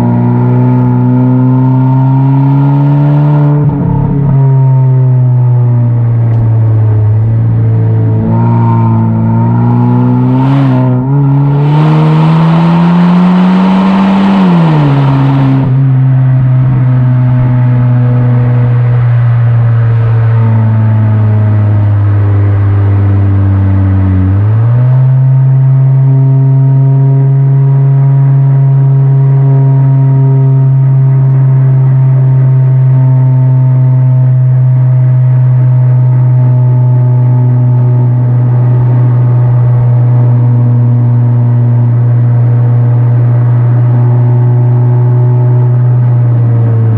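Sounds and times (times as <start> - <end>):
car exhaust drone accelerating: 0.0 - 46.9.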